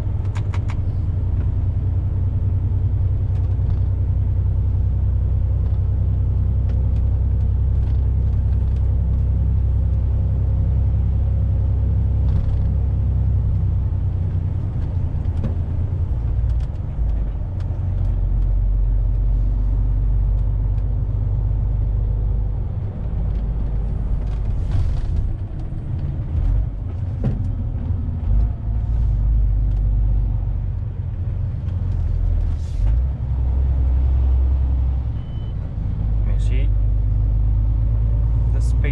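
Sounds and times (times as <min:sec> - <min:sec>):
truck engine rumbling: 0:00.0 - 0:38.9.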